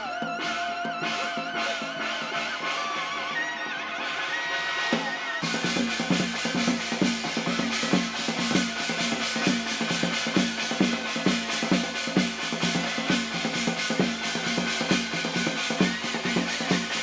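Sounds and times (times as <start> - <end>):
hand cymbals: 0.0 - 17.0
fast drum beat: 4.9 - 17.0.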